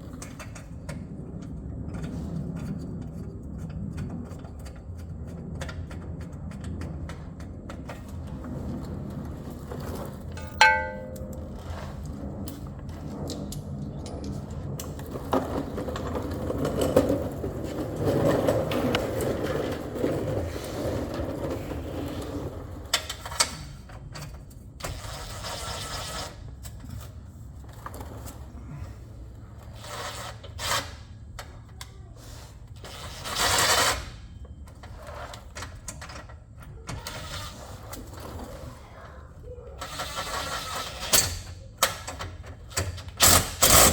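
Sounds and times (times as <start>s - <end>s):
metal tools clinking and scraping: 10.3s - 12.0s.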